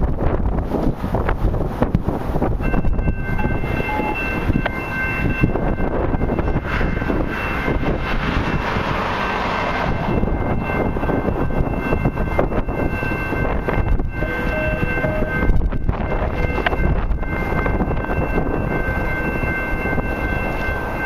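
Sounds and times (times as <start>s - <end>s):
wind noise on microphone: 0.0s - 21.0s
locomotive air horn chord: 2.7s - 5.0s, 13.7s - 17.5s.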